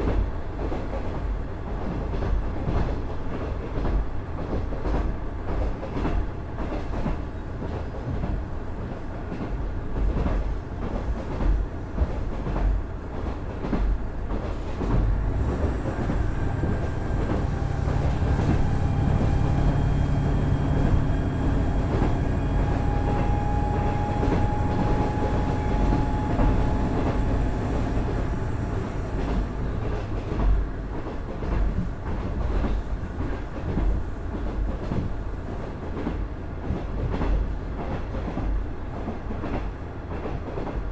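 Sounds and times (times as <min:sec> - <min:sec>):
train wheels clicking on rail joints: 0:00.0 - 0:40.9
diesel engine droning: 0:15.2 - 0:30.0.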